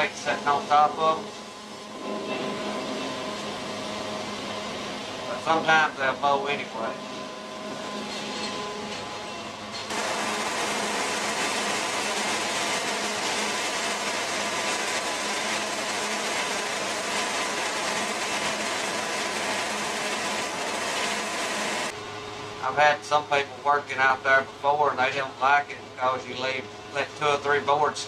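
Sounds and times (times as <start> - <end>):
band sawmill cutting log: 9.6 - 21.9.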